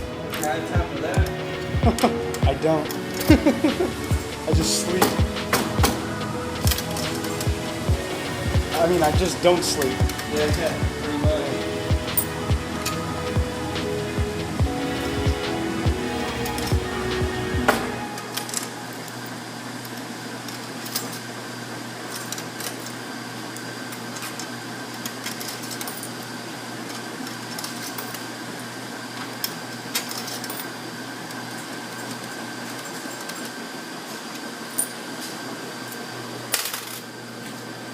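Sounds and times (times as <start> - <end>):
machines humming: 0.0 - 20.5
faint high whine: 0.0 - 22.2.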